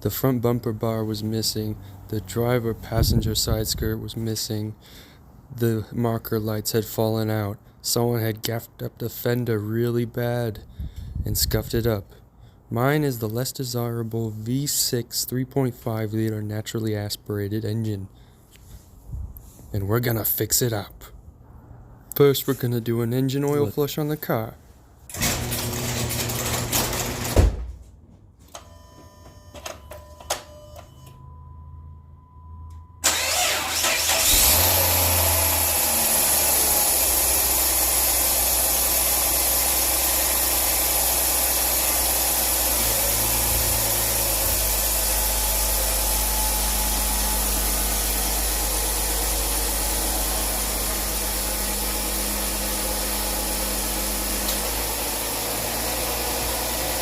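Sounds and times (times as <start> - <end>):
car engine starting and idling: 33.0 - 57.0.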